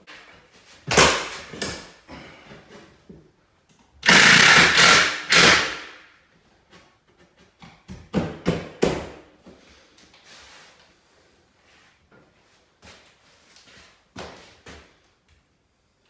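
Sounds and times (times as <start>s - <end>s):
power tool bursts: 4.0s - 6.0s.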